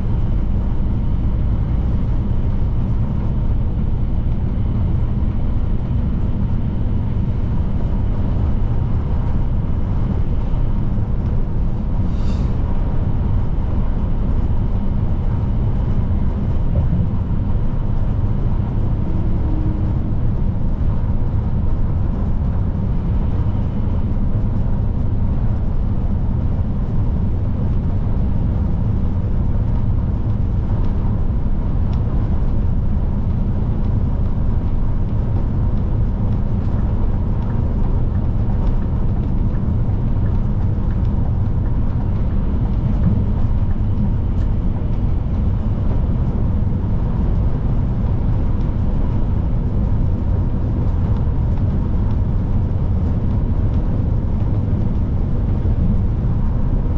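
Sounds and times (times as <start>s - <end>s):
truck diesel engine drone: 0.0s - 24.4s.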